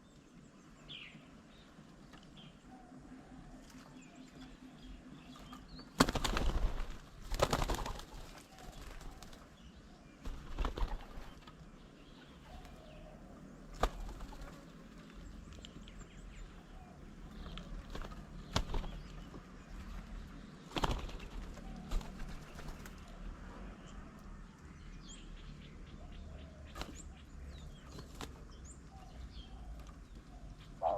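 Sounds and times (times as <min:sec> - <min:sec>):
faint bird calls: 0:00.0 - 0:24.1, 0:25.6 - 0:30.9
bird wings flapping: 0:05.4 - 0:09.6, 0:10.2 - 0:11.6, 0:13.7 - 0:14.8, 0:17.4 - 0:23.2, 0:26.7 - 0:27.0, 0:27.8 - 0:28.5.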